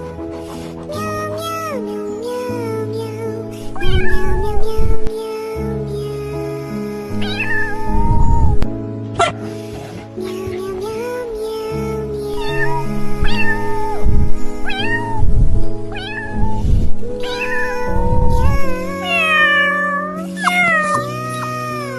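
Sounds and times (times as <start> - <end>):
kitten meowing: 3.8 - 5.1, 7.1 - 9.4, 12.3 - 21.9.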